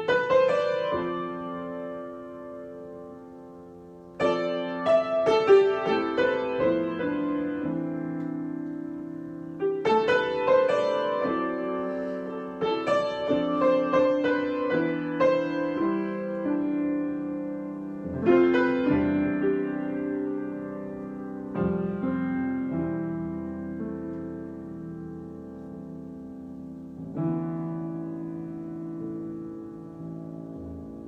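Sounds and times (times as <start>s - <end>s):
solo piano: 0.0s - 31.0s.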